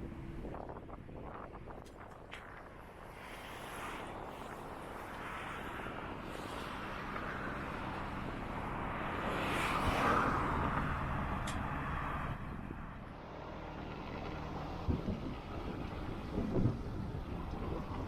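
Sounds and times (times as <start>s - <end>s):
vehicle passing by: 6.6s - 18.0s.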